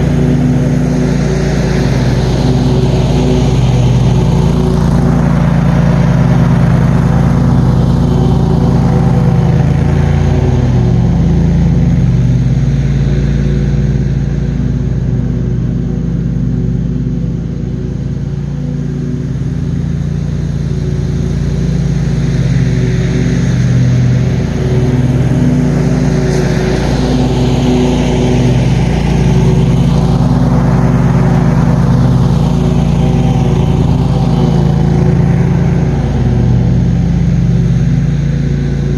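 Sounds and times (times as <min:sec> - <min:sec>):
mower engine running: 0:00.0 - 0:38.9.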